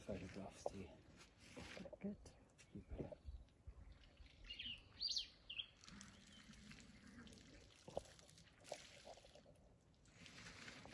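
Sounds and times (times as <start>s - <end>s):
faint outdoor background: 0.0s - 10.9s
bird chirping: 2.7s - 6.6s.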